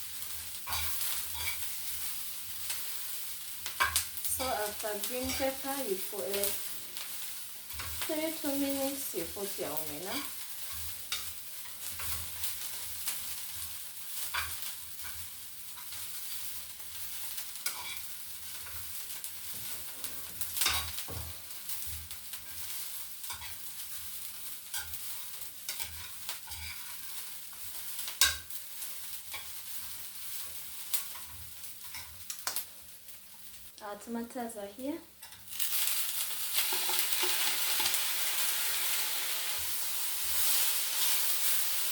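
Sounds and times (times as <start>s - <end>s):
fish sizzling in oil: 0.0s - 41.9s
spoon scraping and knocking pan: 0.6s - 2.1s, 3.8s - 8.8s, 17.6s - 18.9s, 19.5s - 23.6s, 24.7s - 27.2s, 36.5s - 41.6s.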